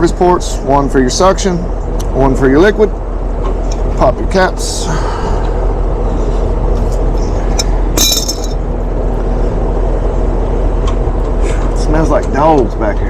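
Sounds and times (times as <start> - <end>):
mechanical drone and hum: 0.0 - 13.0
brass cap ringing clink: 8.0 - 8.6.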